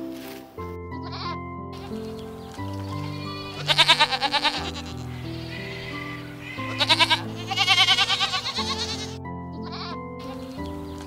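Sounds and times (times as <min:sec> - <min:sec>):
music with long held chords: 0:00.0 - 0:11.0
goats bleating: 0:02.8 - 0:10.4.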